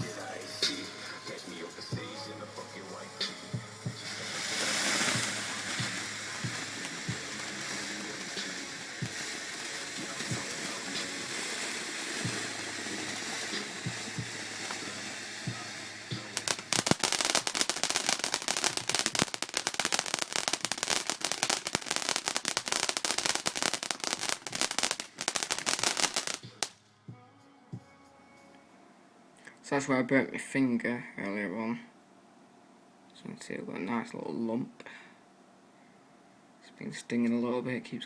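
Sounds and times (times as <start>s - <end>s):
fireworks crackling rapidly: 0.0s - 2.3s, 3.3s - 26.8s
fireworks hissing: 0.0s - 26.8s
fireworks popping: 3.2s - 26.8s.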